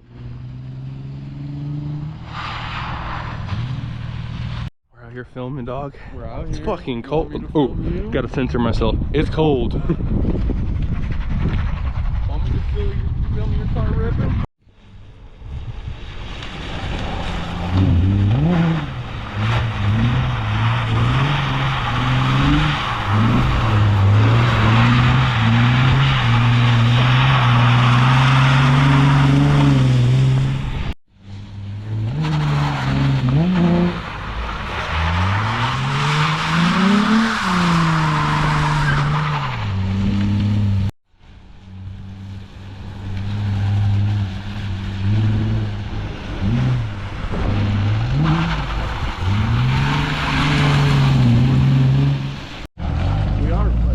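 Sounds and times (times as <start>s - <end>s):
car engine revving: 0.0s - 4.7s, 16.4s - 40.9s, 41.6s - 53.9s
tyres skidding: 16.0s - 53.9s.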